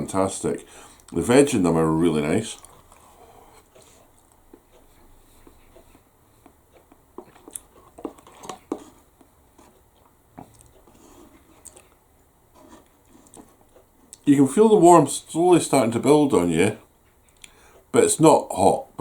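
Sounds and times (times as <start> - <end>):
person chewing noodles: 2.6 - 12.0.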